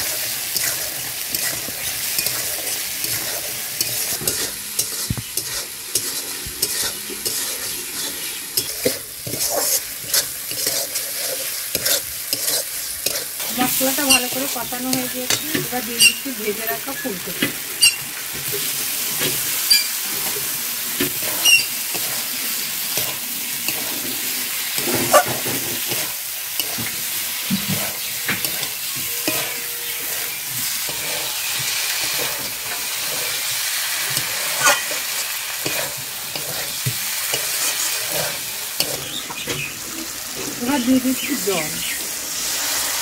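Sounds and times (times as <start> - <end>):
metal spatula scraping a pan: 0.0 - 41.6
food sizzling in a pan: 0.0 - 43.0.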